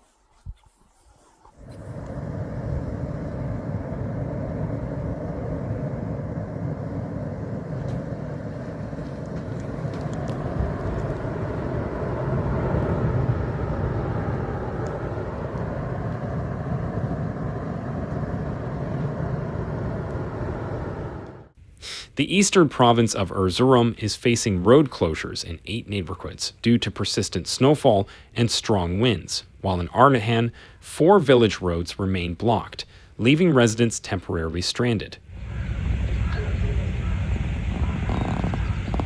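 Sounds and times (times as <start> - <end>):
road noise: 1.5 - 21.6
vehicle engine running: 1.6 - 21.6.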